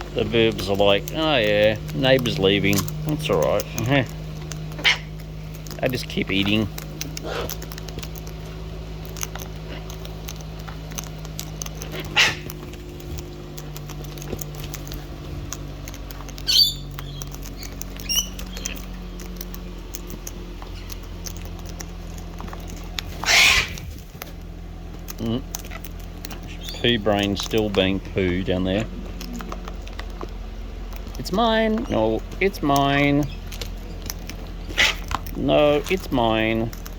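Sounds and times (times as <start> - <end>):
bird calls: 0.0 - 24.0, 25.0 - 36.9
parrots cracking seed: 0.0 - 36.9.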